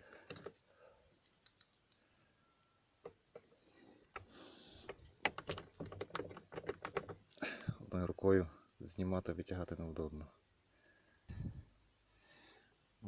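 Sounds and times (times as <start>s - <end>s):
plastic and metal clicks: 4.1s - 7.4s.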